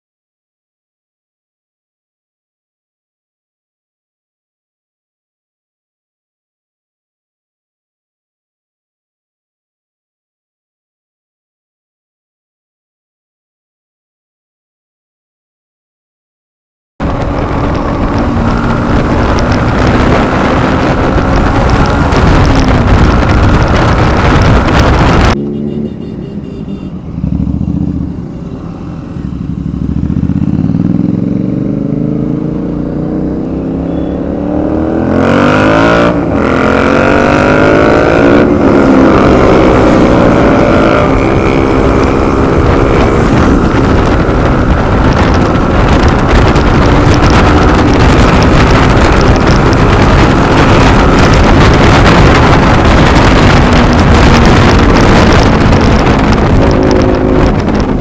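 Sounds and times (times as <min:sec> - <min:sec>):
wind rushing over microphone: 0:17.0 - 0:25.6, 0:26.3 - 0:58.0
motorcycle engine accelerating: 0:17.0 - 0:58.0.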